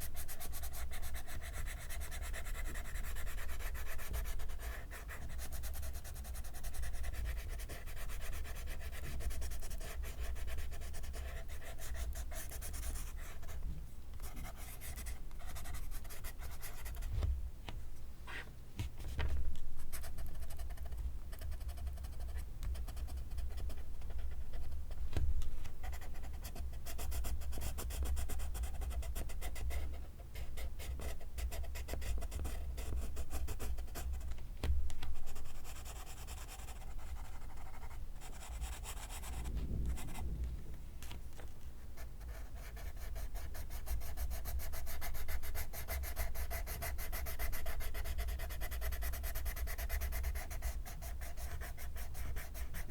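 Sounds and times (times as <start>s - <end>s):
pencil scratching on paper: 0.0s - 13.6s, 42.0s - 52.9s.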